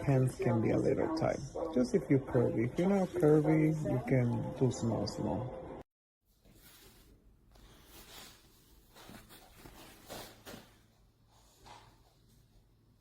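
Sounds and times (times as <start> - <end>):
soft rustling and handling: 6.3 - 13.0.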